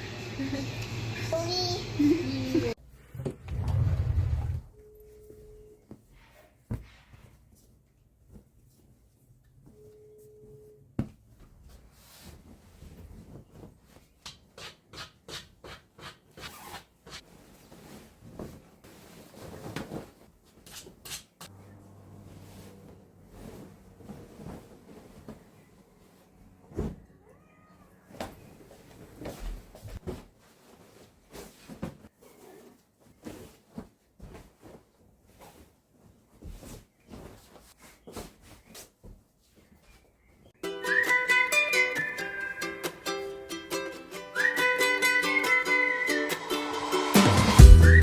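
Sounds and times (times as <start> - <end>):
rustles: 16.4 - 40.5
cat meowing faintly: 27.0 - 28.2.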